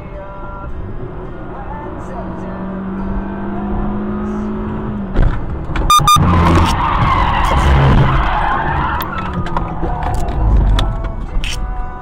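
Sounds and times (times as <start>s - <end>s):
skidding and scraping: 5.1s - 11.6s
short high beeps: 5.9s - 6.4s.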